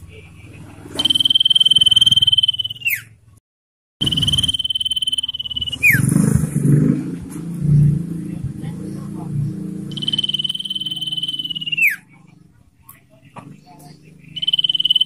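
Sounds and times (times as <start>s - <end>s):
bird trilled whistle: 0.9s - 3.2s, 4.0s - 6.1s, 9.9s - 12.1s, 14.3s - 15.0s
low rough rumbling: 5.4s - 10.6s.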